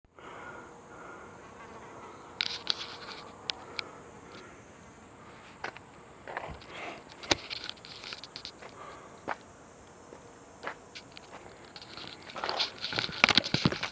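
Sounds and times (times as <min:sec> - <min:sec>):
faint buzz: 0:00.1 - 0:13.9
bike clicks and knocks: 0:05.6 - 0:09.4, 0:10.6 - 0:13.9.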